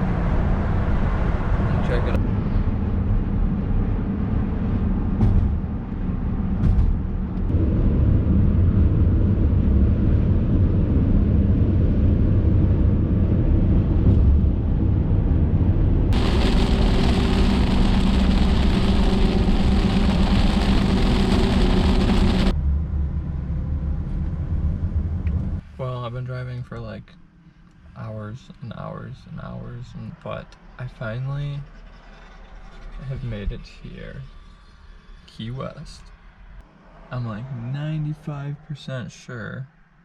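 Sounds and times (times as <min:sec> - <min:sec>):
engine and road rumble: 0:00.0 - 0:40.0
loud high hiss: 0:16.2 - 0:22.5.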